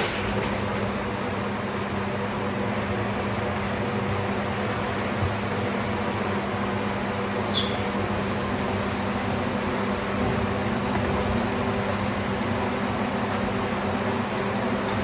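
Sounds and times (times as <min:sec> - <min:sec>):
mechanical fan hum: 0:00.0 - 0:15.0.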